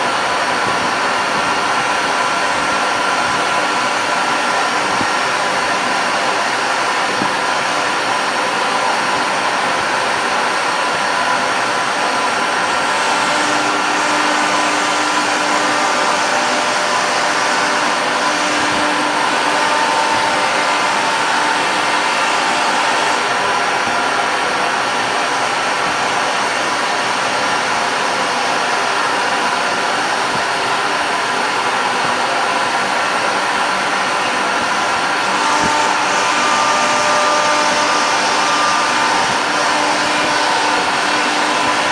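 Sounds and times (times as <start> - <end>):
dust extraction rushing: 0.0 - 41.9
low cutting tone: 0.0 - 41.9
router spindle whine: 0.0 - 41.9.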